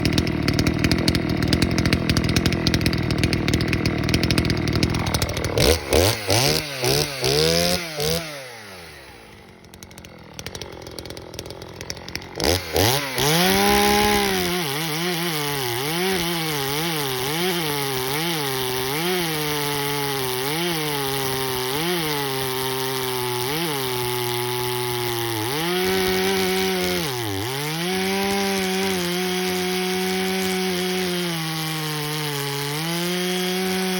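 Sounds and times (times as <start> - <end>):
chainsaw revving: 0.0 - 33.9.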